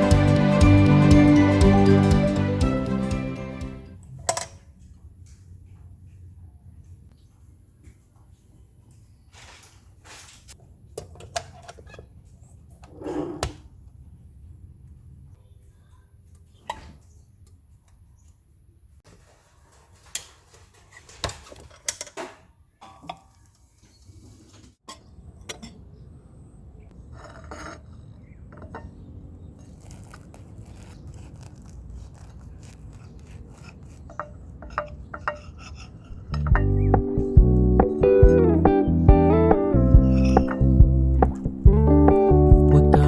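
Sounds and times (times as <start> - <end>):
dishes and utensils clinking: 34.1 - 38.2, 39.9 - 41.6
low steady hum: 36.0 - 43.0.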